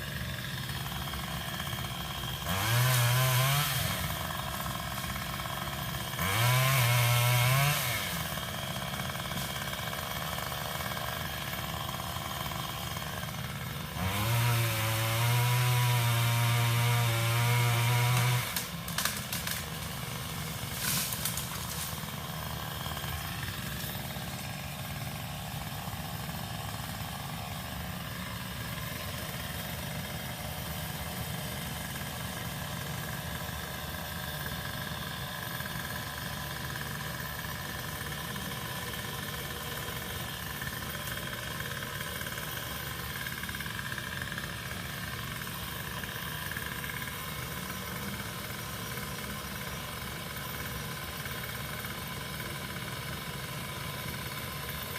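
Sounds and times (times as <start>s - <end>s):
small engine idling: 0.0s - 54.9s.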